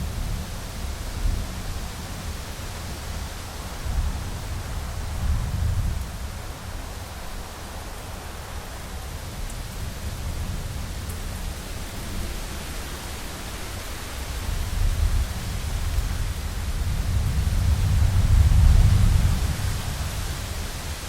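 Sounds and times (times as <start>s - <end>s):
low rumble of thunder: 0.0s - 7.2s, 14.1s - 21.0s
heavy rain against a window: 0.0s - 21.0s.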